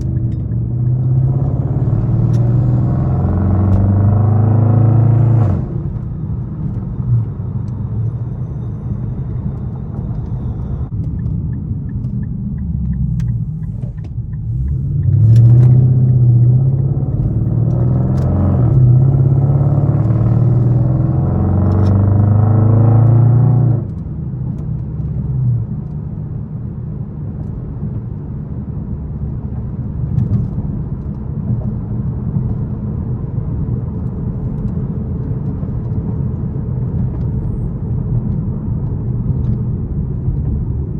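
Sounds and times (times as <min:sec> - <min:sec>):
car exhaust rumbling: 0:00.0 - 0:25.9.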